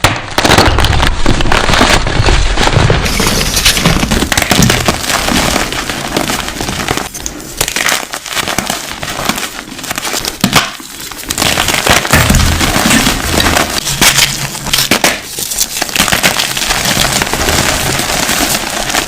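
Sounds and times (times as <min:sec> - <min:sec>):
crunchy objects being crushed: 0:00.0 - 0:19.0.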